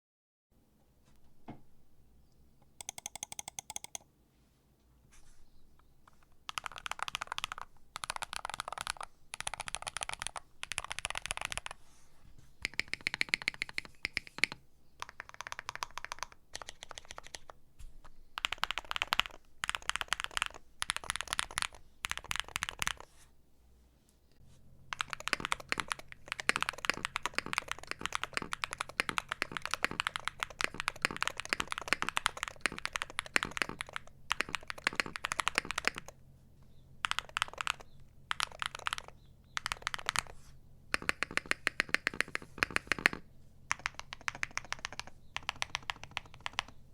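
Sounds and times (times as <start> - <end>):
mechanical keyboard typing: 2.6 - 4.0, 6.1 - 11.8, 12.6 - 17.6, 18.4 - 23.0, 24.9 - 36.2, 37.0 - 40.3, 40.9 - 46.8.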